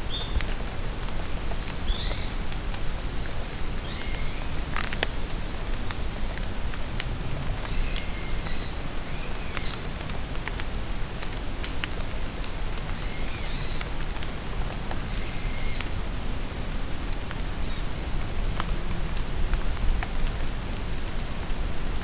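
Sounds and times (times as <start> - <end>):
steady rain in forest: 0.0 - 22.0
raindrops ticking: 0.2 - 16.0, 16.6 - 21.7
bird singing: 1.5 - 5.6.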